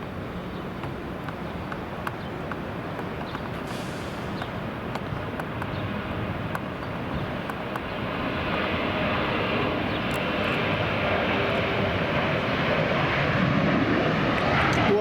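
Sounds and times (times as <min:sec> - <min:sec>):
jet engines roaring at takeoff: 0:00.0 - 0:15.0.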